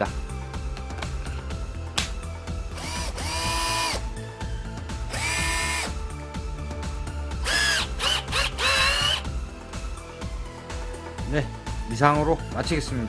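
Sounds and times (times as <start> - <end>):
background music: 0.0 - 13.0
cordless drill motor whining: 2.7 - 4.1, 5.1 - 6.1, 7.4 - 9.4.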